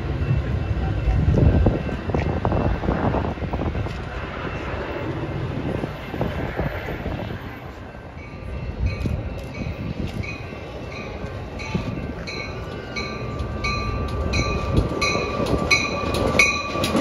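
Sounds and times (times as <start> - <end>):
train wheels clicking over rail joints: 8.9 - 17.0.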